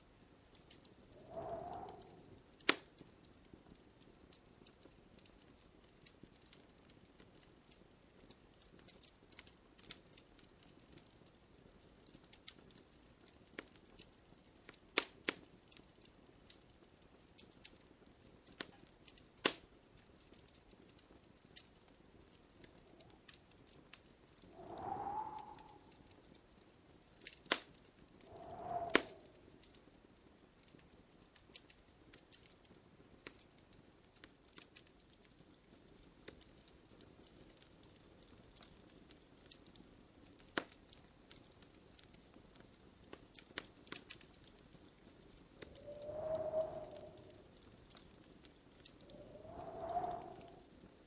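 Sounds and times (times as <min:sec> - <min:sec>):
wood fire crackling: 0:00.0 - 0:51.0
sharp pops of fire: 0:00.6 - 0:03.1, 0:14.7 - 0:15.8, 0:18.4 - 0:23.4, 0:27.2 - 0:29.8, 0:40.4 - 0:50.7.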